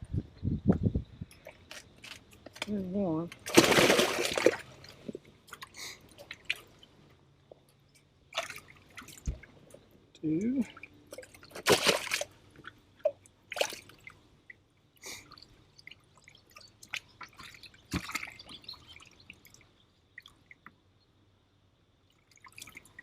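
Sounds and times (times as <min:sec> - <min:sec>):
water dripping: 0:01.3 - 0:21.1, 0:22.0 - 0:23.0
water splashing: 0:03.3 - 0:07.0, 0:08.3 - 0:20.6.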